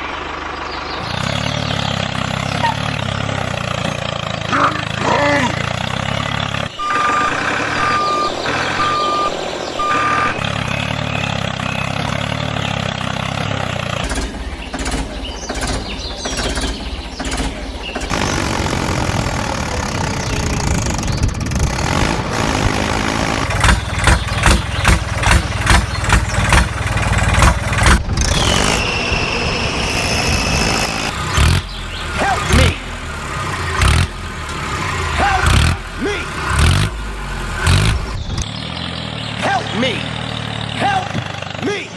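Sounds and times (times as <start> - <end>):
vehicle engine running: 0.0 - 41.9
falling whine: 6.7 - 12.3
reversing alarm beeping: 6.8 - 11.1.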